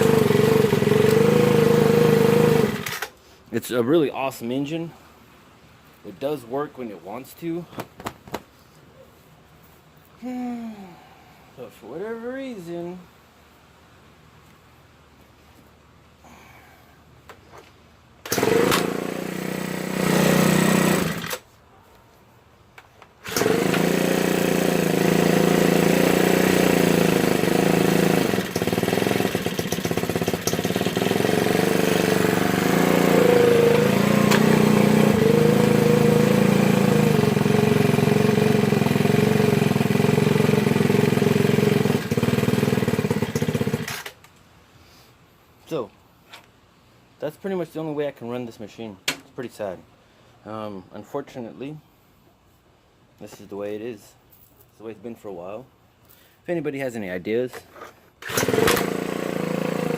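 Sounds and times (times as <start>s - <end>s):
leaf blower engine running: 0.0s - 3.1s, 18.3s - 21.4s, 23.2s - 44.2s, 58.2s - 59.9s.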